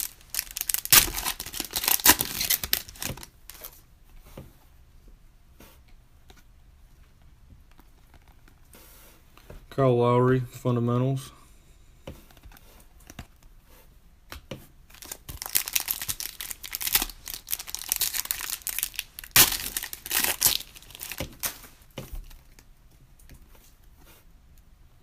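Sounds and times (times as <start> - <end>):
card pack wrapper tearing: 0.0 - 3.8, 14.9 - 22.5.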